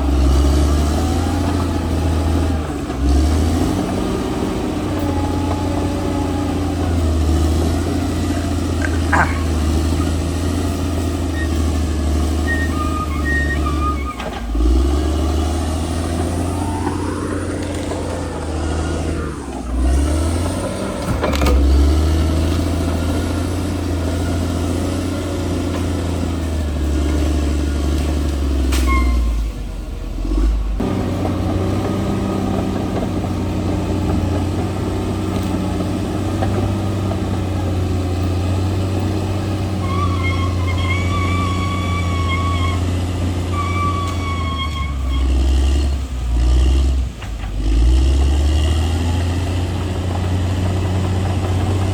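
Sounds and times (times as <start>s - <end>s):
bulldozer diesel engine under load: 0.0s - 51.9s.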